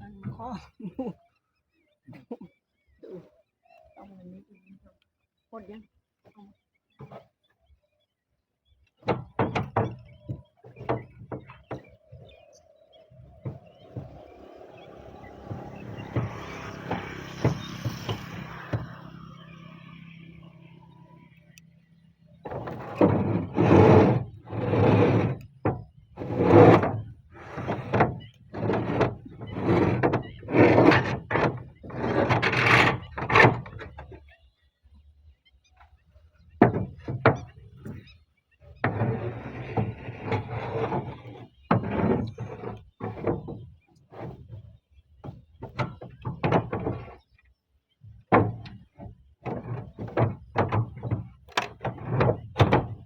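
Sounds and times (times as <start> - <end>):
scraping wood: 9.0 - 21.6, 22.3 - 34.2, 36.6 - 38.1, 38.7 - 47.4, 48.0 - 53.0
rasping strokes on wood: 13.2 - 19.7, 22.5 - 33.9.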